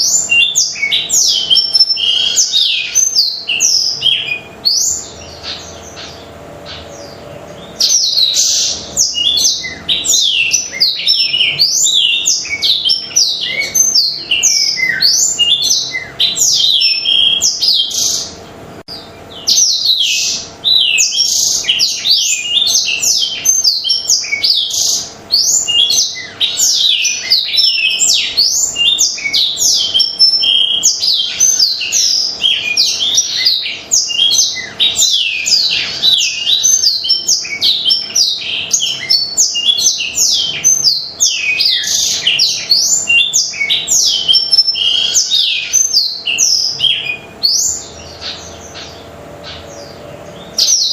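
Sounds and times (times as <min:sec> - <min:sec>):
canary singing: 0:00.0 - 0:50.9.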